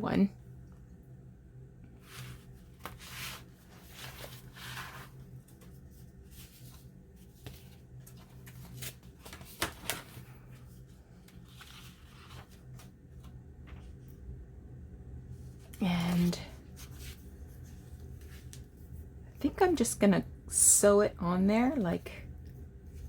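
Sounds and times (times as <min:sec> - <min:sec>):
paper and card rustling: 0:02.0 - 0:13.9.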